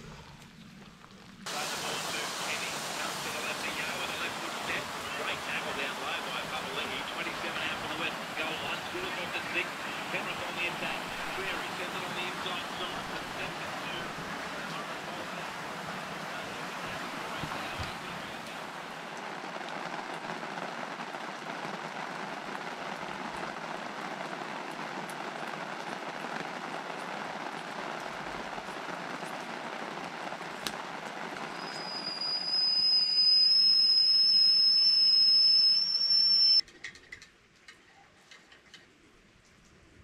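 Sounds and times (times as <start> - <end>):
steady rain falling: 0.0 - 40.0
loud high-pitched tone: 32.1 - 36.6.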